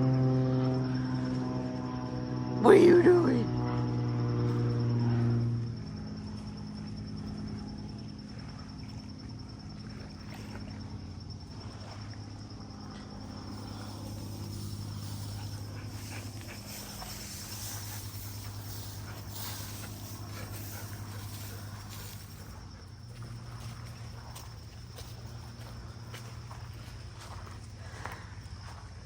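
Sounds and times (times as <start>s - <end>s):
insects trilling: 0.0s - 29.0s
low steady hum: 0.0s - 29.0s
faint rustles: 13.3s - 25.4s.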